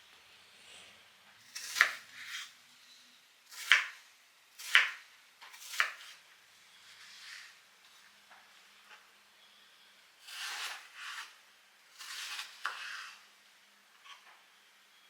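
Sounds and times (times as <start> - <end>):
knife cutting on cutting board: 1.5 - 2.5, 10.3 - 11.3, 12.0 - 13.2.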